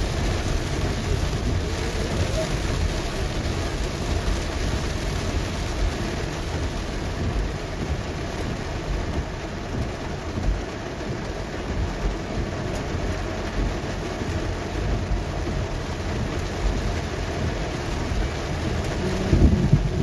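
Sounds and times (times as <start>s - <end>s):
car rumbling on wet road: 0.0s - 20.0s
heavy rain drumming on car roof: 0.0s - 20.0s.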